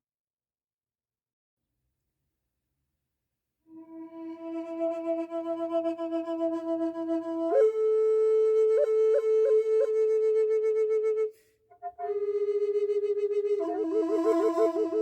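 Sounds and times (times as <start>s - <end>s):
flute playing slow held notes: 3.7s - 15.0s
breath on flute: 11.2s - 11.8s.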